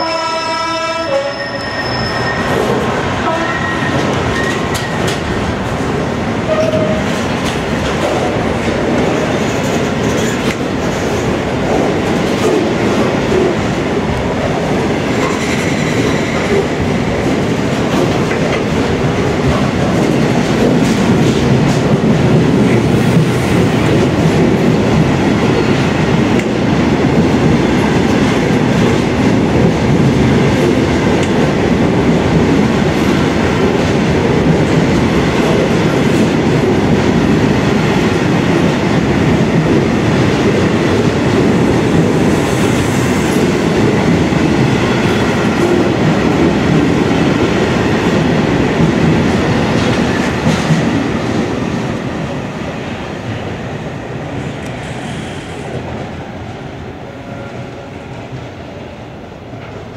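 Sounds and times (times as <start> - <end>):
freight train wheels rumbling on rails: 0.0 - 59.9
wheel squeals: 1.3 - 2.7.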